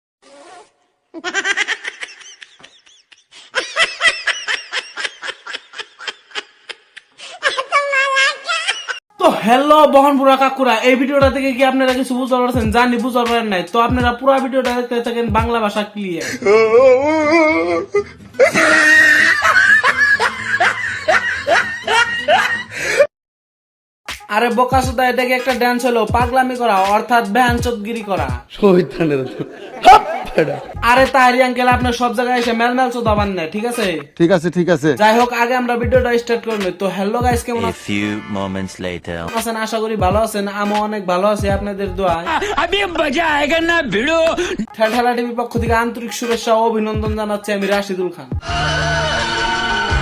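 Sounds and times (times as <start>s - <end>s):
person laughing: 1.2s - 9.0s, 16.8s - 23.1s, 29.0s - 31.0s, 37.6s - 38.2s, 42.1s - 42.7s.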